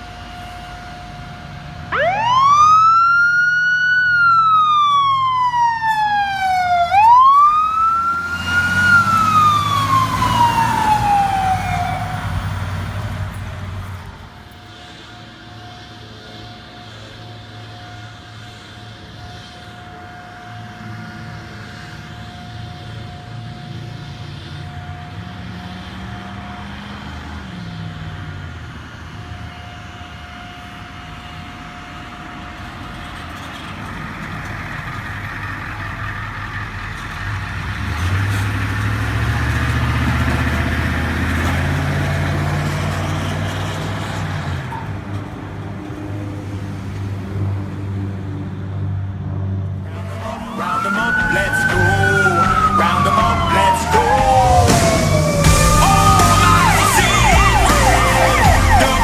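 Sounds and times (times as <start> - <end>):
vehicle accelerating past: 1.9 - 14.2, 37.1 - 45.1, 46.0 - 59.0
engine revving: 1.9 - 14.4, 34.3 - 59.0.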